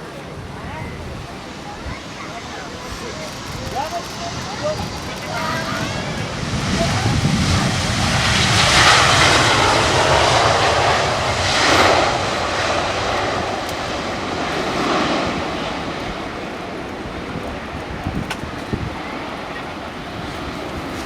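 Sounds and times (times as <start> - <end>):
airliner engines passing: 0.0 - 21.0.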